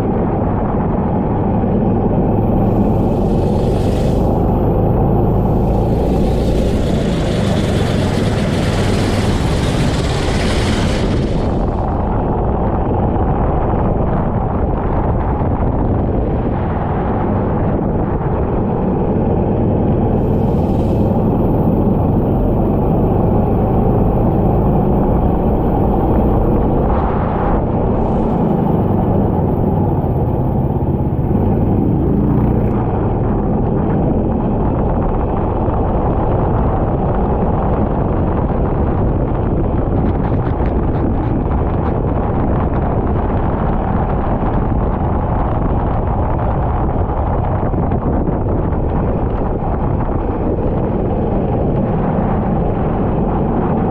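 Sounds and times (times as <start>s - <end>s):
heavy wind noise: 0.0s - 53.9s
kart engine running: 1.4s - 12.7s, 18.8s - 53.9s
track noise: 1.8s - 15.0s.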